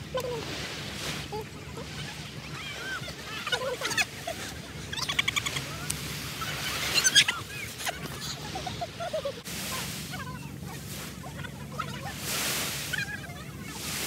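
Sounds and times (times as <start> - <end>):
birds chirping and chattering: 1.4 - 9.4.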